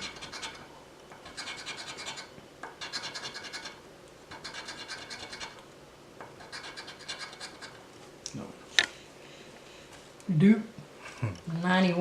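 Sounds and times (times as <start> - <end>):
scratch-off ticket being scraped: 0.0 - 5.6, 6.4 - 7.8.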